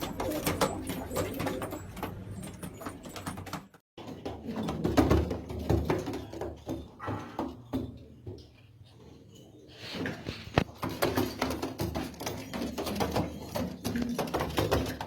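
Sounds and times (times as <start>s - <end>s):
pigeons cooing: 0.0s - 2.1s, 12.3s - 15.0s.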